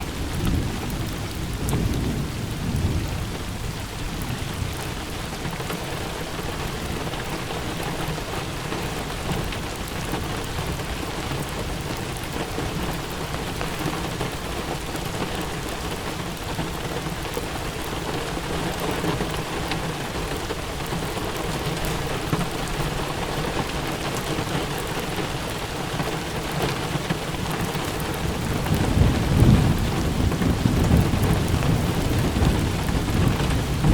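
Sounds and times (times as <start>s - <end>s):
low thunder rumbling: 0.0s - 4.9s, 28.0s - 33.9s
steady rain falling: 0.0s - 33.9s.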